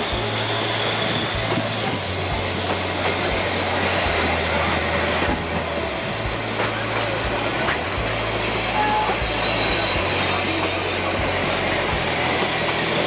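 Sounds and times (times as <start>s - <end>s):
high wheel squeal: 0.0s - 3.8s, 8.0s - 13.0s
train wheels rumbling on rails: 0.0s - 13.0s.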